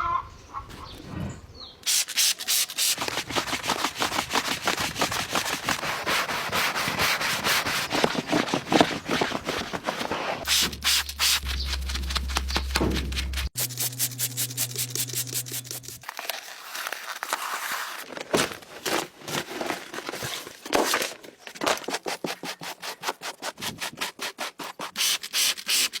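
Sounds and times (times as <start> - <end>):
rapid scrubbing strokes: 1.9 - 16.0
low hum: 10.4 - 16.0.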